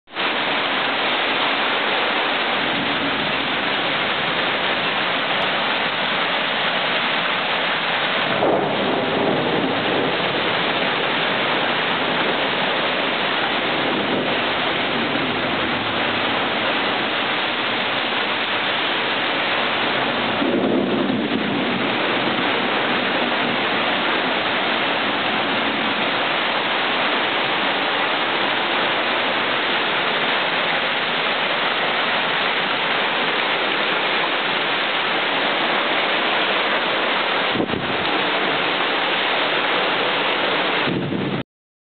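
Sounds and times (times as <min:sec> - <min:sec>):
heavy rain pouring: 0:00.1 - 0:41.4
thunder rumbles: 0:08.0 - 0:26.6.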